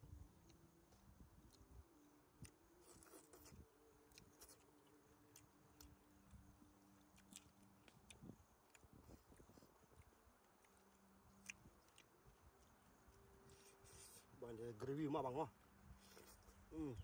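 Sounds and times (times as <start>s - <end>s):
faint low hum: 0.0s - 17.0s
person chewing food: 2.4s - 14.3s, 16.0s - 16.7s.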